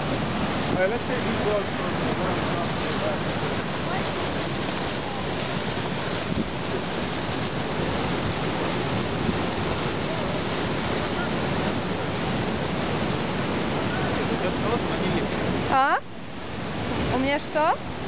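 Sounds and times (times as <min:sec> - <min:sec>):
flood water rushing: 0:00.0 - 0:18.0
hurricane wind: 0:00.0 - 0:18.0
wind buffeting microphone: 0:02.0 - 0:14.4.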